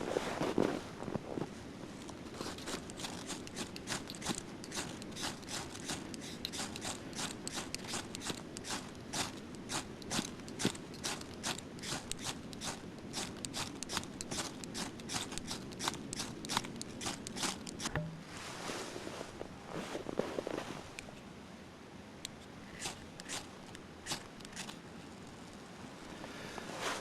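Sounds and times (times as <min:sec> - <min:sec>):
hand saw cutting wood: 0:02.4 - 0:17.9, 0:22.7 - 0:24.8.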